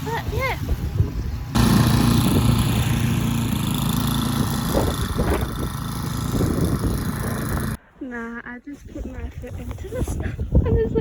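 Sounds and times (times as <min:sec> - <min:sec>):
snowblower engine running: 0:00.7 - 0:07.8.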